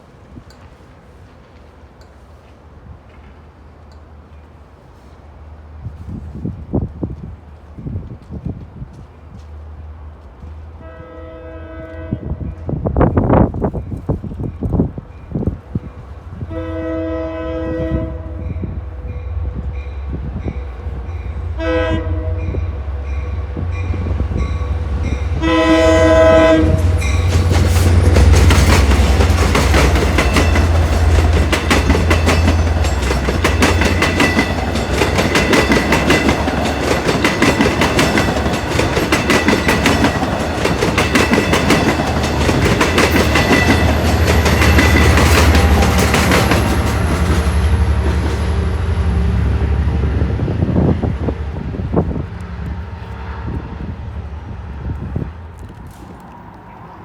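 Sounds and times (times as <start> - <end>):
train horn: 10.8 - 12.8, 16.4 - 33.0
train wheels clattering: 23.2 - 48.9.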